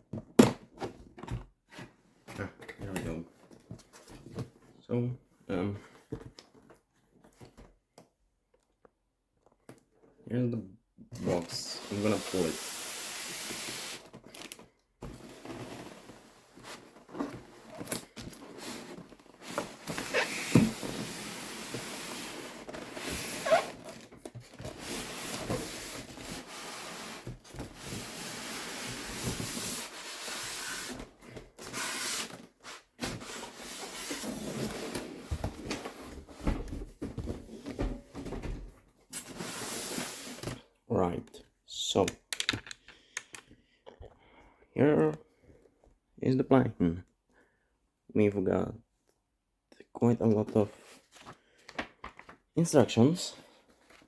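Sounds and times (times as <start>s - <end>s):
cardboard box scraping and rustling: 11.3s - 36.3s.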